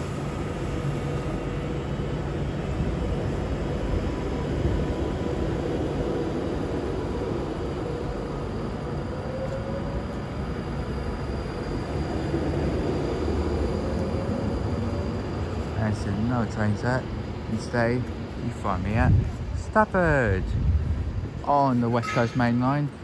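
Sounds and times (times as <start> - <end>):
electric train rumble and whine: 0.0 - 23.0.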